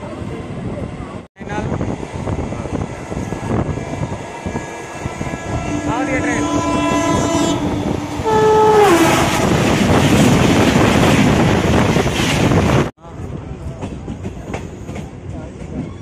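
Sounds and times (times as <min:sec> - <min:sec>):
train coaches rushing and clattering: 0:00.0 - 0:16.0
train horn: 0:04.5 - 0:09.7.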